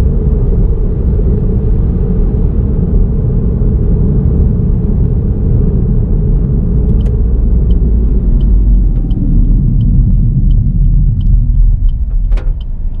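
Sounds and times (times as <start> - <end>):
car road and engine rumble: 0.0 - 13.0
faint regular ticking: 6.8 - 13.0.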